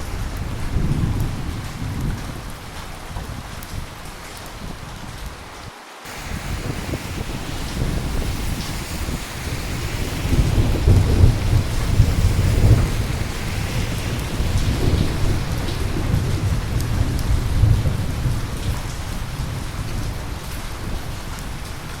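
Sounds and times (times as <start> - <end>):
steady rain: 0.0 - 22.0
rolling thunder: 6.1 - 21.7.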